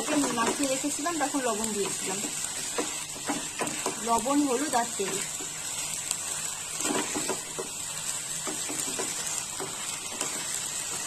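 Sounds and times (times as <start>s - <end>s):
chicken sizzling in hot oil: 0.0s - 11.0s
spatula scraping pan: 1.7s - 11.0s.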